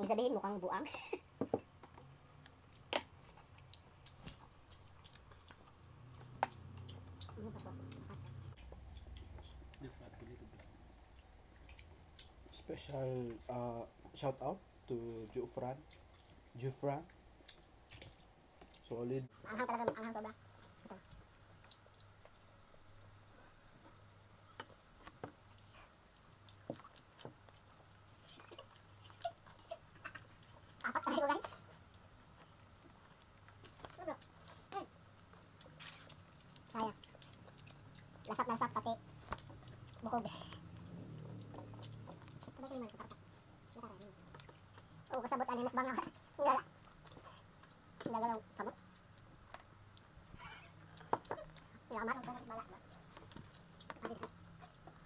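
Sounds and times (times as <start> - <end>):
low steady hum: 0.0 - 55.0
sharp clicks and smacks: 1.4 - 12.6, 24.2 - 55.0
person chewing: 1.6 - 12.6, 15.8 - 18.9, 20.5 - 55.0.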